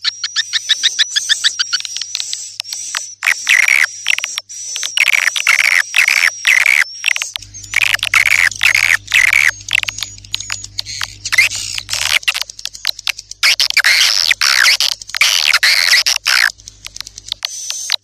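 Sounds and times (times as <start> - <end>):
high-pitched bird chirping: 5.0 - 18.0
steady low hum: 7.1 - 18.0.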